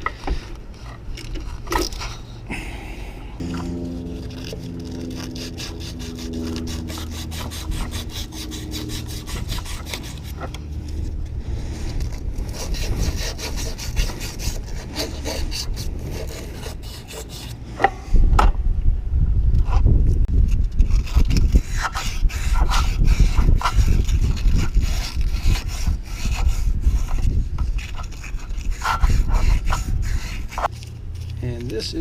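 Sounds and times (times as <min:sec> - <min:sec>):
low rumble: 0:02.2 - 0:21.7.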